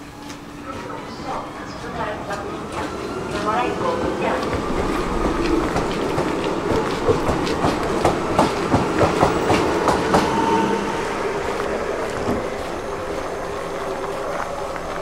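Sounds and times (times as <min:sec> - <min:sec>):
train whine and rumble: 0:00.0 - 0:15.0.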